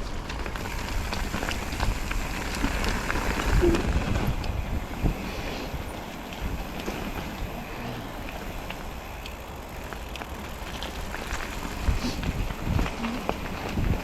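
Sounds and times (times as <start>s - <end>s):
wind noise on microphone: 0.0s - 7.6s, 11.0s - 14.0s
bicycle tyres rolling on trail: 0.0s - 14.0s
bike clicks and rattles: 0.0s - 14.0s.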